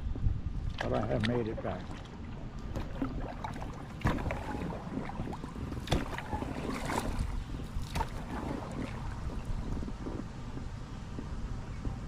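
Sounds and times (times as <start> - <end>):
water around kayak: 0.0 - 12.0
wind buffeting microphone: 0.0 - 12.0
sharp knocks from boat: 1.9 - 9.5.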